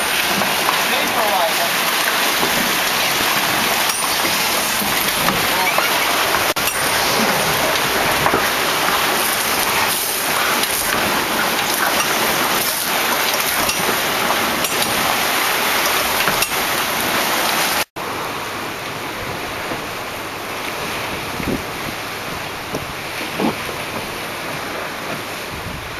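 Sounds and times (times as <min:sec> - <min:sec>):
wind-driven rain hissing: 0:00.0 - 0:25.9.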